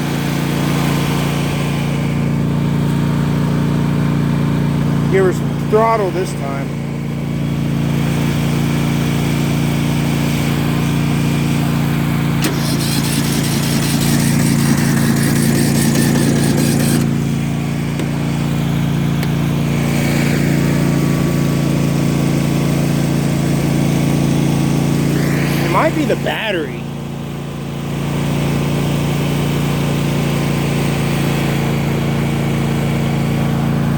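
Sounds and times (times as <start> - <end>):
engine running steadily: 0.0 - 33.9
harsh whirring noise: 12.4 - 18.5, 24.5 - 27.5.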